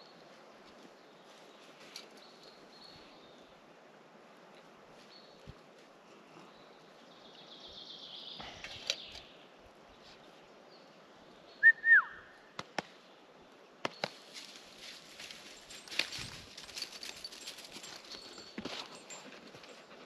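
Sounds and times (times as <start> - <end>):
whistled bird call: 11.6 - 12.4.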